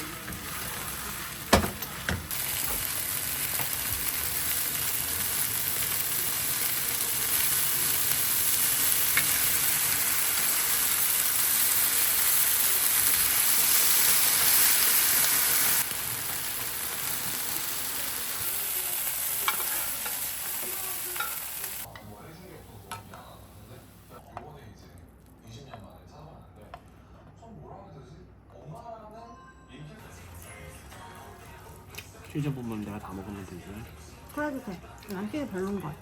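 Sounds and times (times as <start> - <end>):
food sizzling in a pan: 0.0 - 24.2, 32.4 - 36.0.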